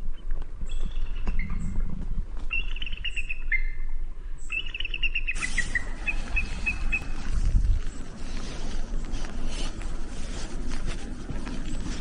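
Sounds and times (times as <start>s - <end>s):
outdoor noise hiss: 3.1s - 12.0s.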